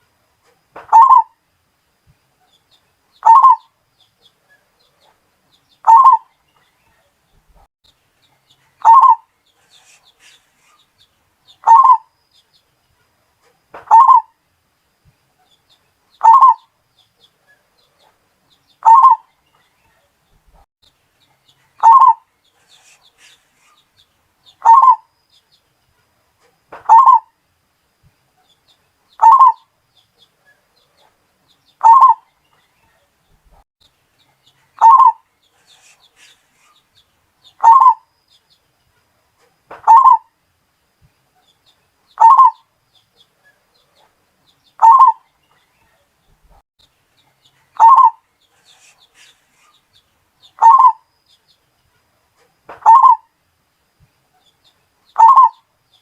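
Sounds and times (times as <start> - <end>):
dove cooing: 0.9 - 1.3, 3.2 - 3.6, 5.8 - 6.3, 8.8 - 10.4, 11.6 - 12.1, 13.9 - 14.3, 16.2 - 16.6, 18.8 - 19.2, 21.8 - 23.4, 24.6 - 25.0, 26.9 - 27.3, 29.2 - 29.6, 31.8 - 32.2, 34.8 - 36.3, 37.6 - 38.0, 39.8 - 40.2, 42.2 - 42.6, 44.8 - 45.2, 47.8 - 49.4, 50.6 - 51.0, 52.8 - 53.2, 55.2 - 55.6.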